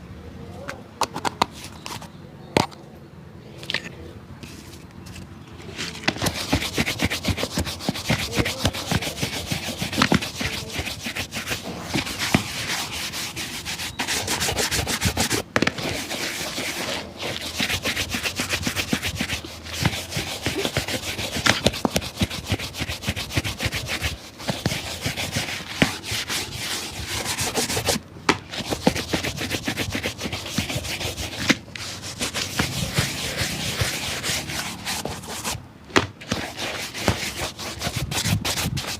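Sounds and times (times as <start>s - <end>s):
scrubbing a shoe: 4.4s - 35.6s, 36.2s - 38.9s.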